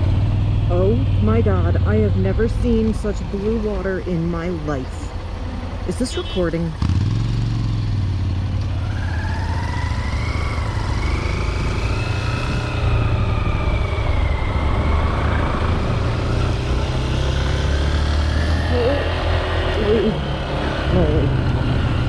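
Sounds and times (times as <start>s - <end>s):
motorcycle engine running: 0.0s - 14.4s
wind and road noise: 0.0s - 22.0s.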